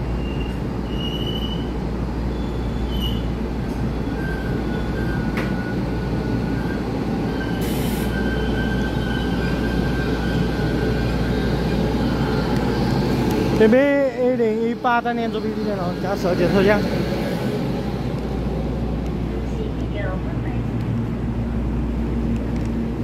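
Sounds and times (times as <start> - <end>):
train rumbling past: 0.0 - 23.0
faint wheel squeal: 0.2 - 1.7, 2.3 - 3.3.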